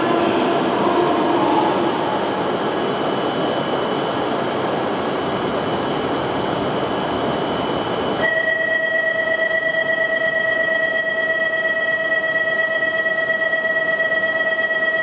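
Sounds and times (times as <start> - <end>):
train rushing past: 0.0 - 8.3
faint high whine: 0.0 - 15.0.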